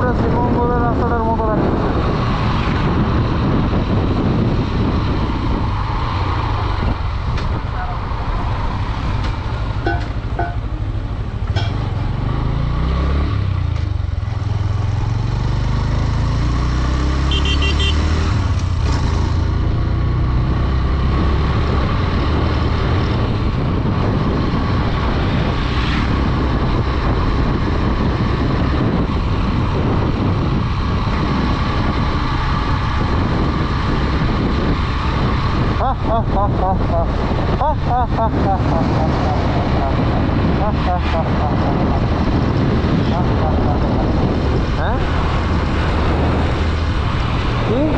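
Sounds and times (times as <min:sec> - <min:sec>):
motorcycle engine running: 0:02.9 - 0:20.9.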